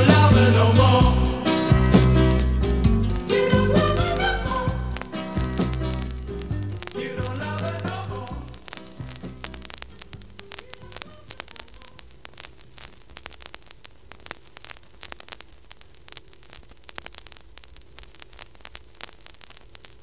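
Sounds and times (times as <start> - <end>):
music notes: 0.0 - 11.6
faint hiss and low hum: 0.0 - 20.0
vinyl crackle clicks and pops: 0.0 - 20.0.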